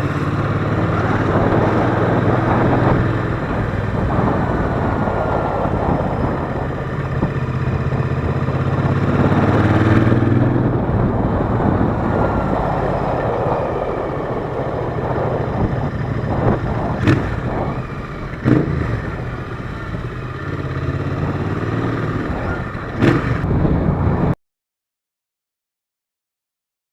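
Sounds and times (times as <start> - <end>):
motorcycle engine running: 0.0 - 24.4.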